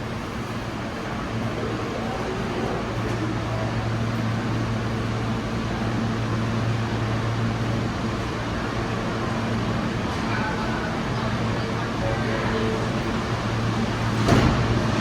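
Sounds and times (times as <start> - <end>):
subway train humming: 0.0 - 15.0.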